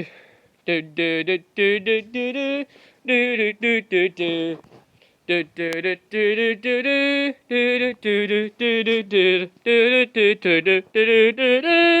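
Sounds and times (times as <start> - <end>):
person singing: 0.0 - 4.6, 5.3 - 12.0.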